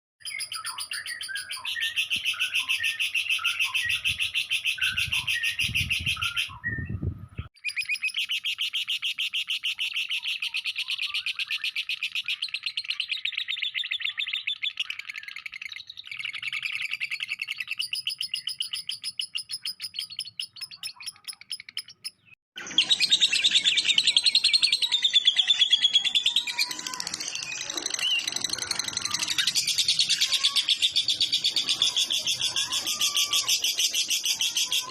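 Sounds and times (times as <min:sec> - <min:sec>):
lovebird trilling: 0:25.2 - 0:34.9.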